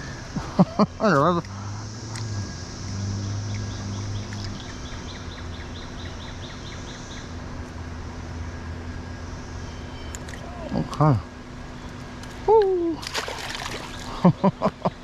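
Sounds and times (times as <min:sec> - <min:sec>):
cicada drone: 0:00.0 - 0:15.0
bird chirping: 0:01.3 - 0:07.4, 0:09.4 - 0:10.8
running water: 0:13.0 - 0:14.3.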